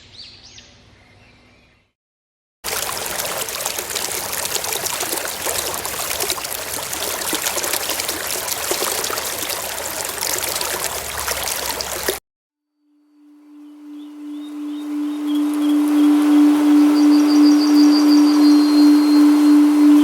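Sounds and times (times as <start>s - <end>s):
running water rushing: 2.6s - 12.2s, 14.6s - 20.0s.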